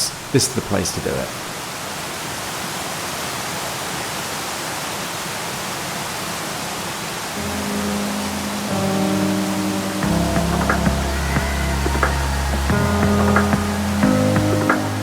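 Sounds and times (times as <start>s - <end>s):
waterfall rushing: 0.0s - 15.0s
background music: 7.4s - 15.0s.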